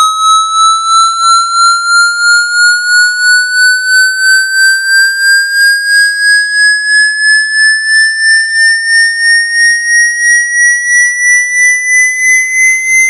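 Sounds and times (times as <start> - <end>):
electronic rising pulsing tone: 0.0 - 10.3.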